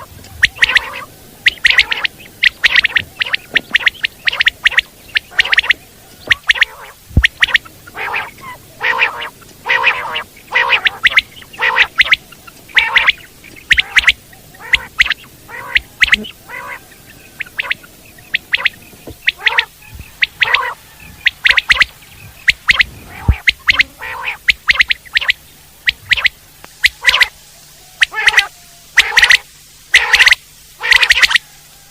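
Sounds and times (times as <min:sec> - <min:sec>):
quails calling: 0:00.0 - 0:31.9.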